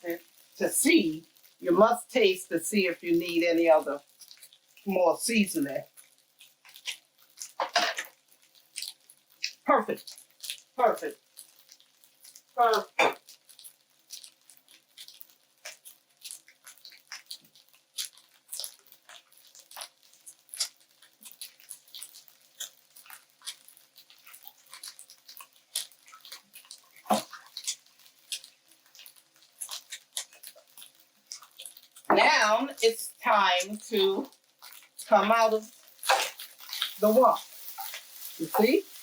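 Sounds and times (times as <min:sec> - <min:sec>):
spatula scraping rice in wok: 0:34.7 - 0:39.0.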